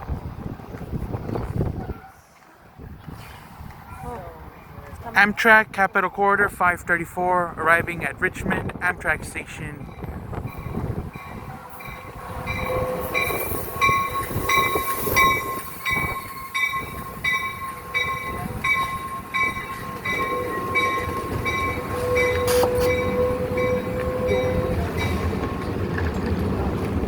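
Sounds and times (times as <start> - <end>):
train rumbling: 0.0 - 27.0
train wheels squealing: 10.5 - 18.3.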